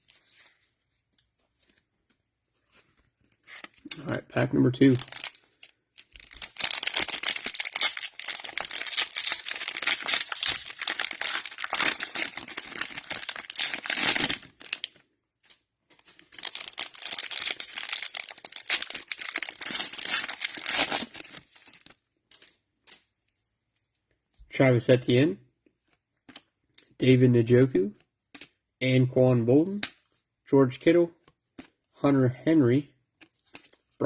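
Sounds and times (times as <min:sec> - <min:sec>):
cellophane wrapper crinkling and tearing: 0:04.7 - 0:23.0.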